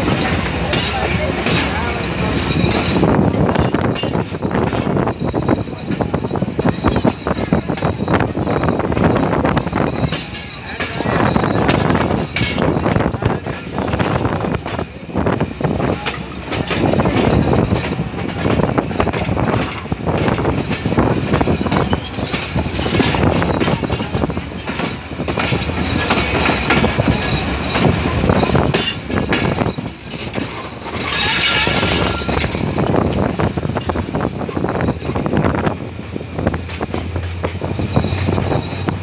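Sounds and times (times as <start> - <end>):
train wheels clacking over rail joints: 0.0 - 39.0
wheel squeal: 18.5 - 33.0, 37.2 - 39.0.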